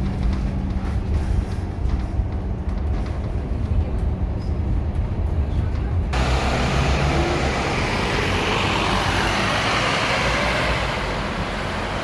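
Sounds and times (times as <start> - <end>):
bus engine rumble: 0.0 - 12.0
road and tyre hiss: 6.1 - 12.0.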